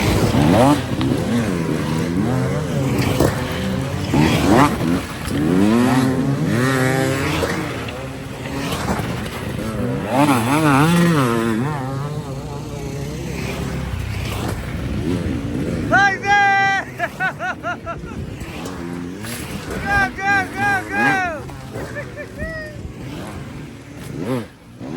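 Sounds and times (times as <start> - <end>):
dirt bike engines revving: 0.0 - 24.9.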